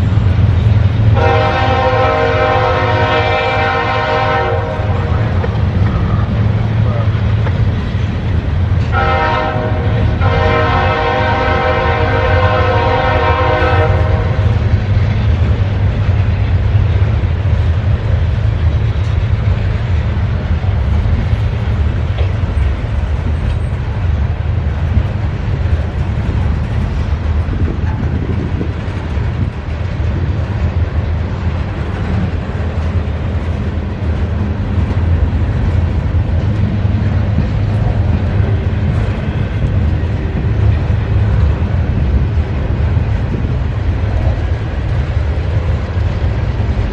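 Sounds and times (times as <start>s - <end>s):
freight train rumbling past: 0.0s - 46.9s
train horn: 1.1s - 6.3s, 8.8s - 14.7s.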